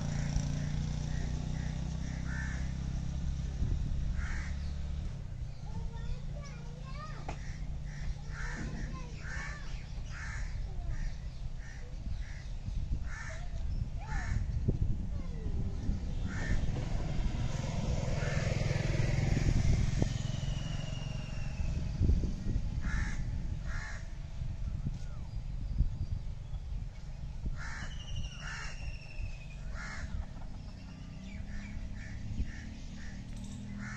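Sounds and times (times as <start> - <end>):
short bird calls: 27.6 - 33.9.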